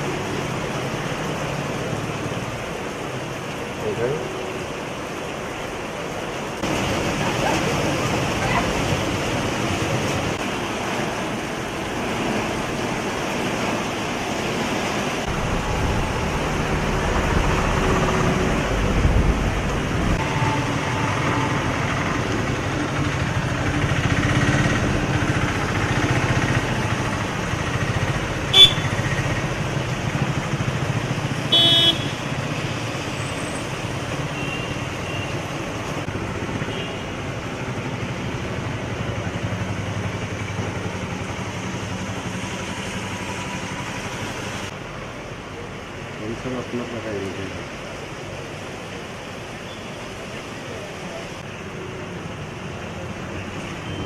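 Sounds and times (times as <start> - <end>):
vehicles passing: 0.0 - 54.0
heavy vehicle passing close: 14.9 - 31.5.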